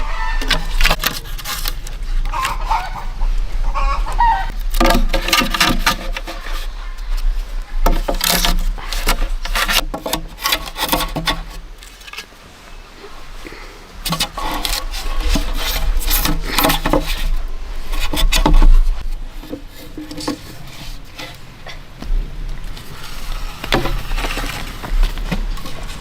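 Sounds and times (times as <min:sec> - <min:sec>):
scraping and rubbing on wood: 0:00.0 - 0:03.1, 0:04.2 - 0:12.4, 0:14.0 - 0:26.0
steady low rumble: 0:18.6 - 0:23.1.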